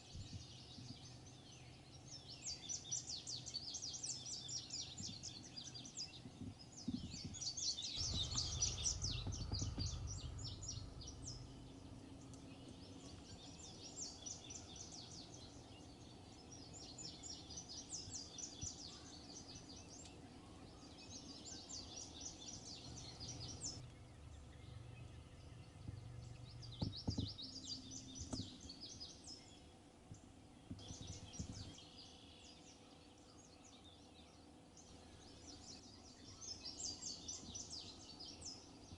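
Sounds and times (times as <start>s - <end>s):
songbirds singing: 0.0s - 38.9s
low rumble: 7.9s - 14.0s.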